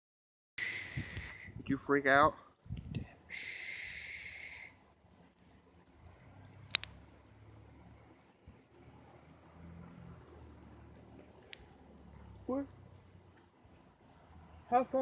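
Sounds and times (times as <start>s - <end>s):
cricket chirping: 0.7s - 15.0s.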